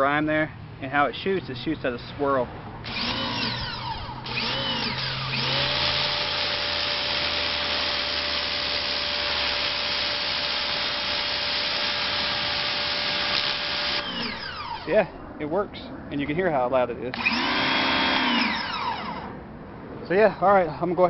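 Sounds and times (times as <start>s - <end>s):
pressure washer motor whine: 2.8s - 14.9s, 17.1s - 19.4s.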